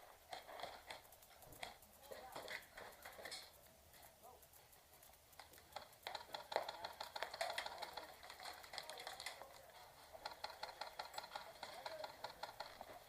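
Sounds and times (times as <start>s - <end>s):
airsoft guns firing: 5.4s - 13.0s
pellets striking: 5.4s - 13.0s.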